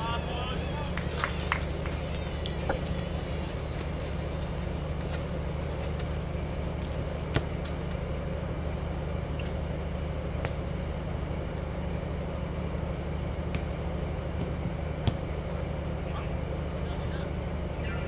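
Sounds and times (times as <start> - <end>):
low rumble of court ambience: 0.0 - 18.0.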